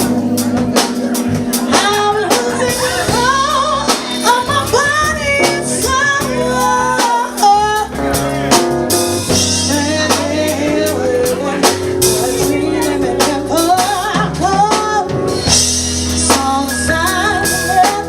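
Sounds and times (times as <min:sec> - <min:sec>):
live band playing: 0:00.0 - 0:18.0
woman singing: 0:01.6 - 0:08.2, 0:09.4 - 0:18.0.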